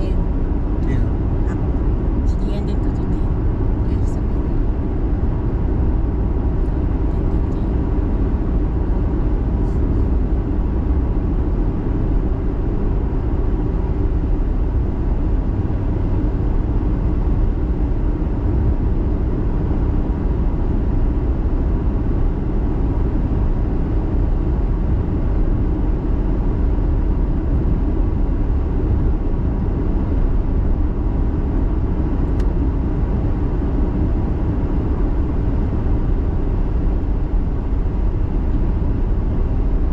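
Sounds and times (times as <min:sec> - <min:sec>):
car engine and tyre noise: 0:00.0 - 0:39.9.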